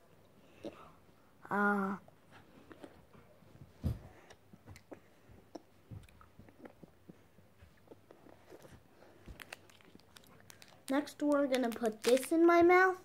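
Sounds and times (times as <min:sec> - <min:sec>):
child chewing candy: 0:02.4 - 0:03.2, 0:04.1 - 0:12.6.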